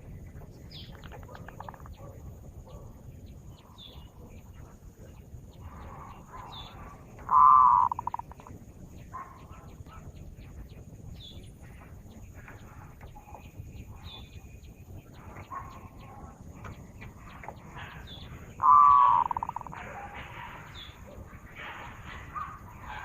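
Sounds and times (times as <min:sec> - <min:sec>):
birds cooing and chirping: 0:00.0 - 0:23.0
dove rolling coo: 0:05.8 - 0:08.5, 0:17.6 - 0:22.4.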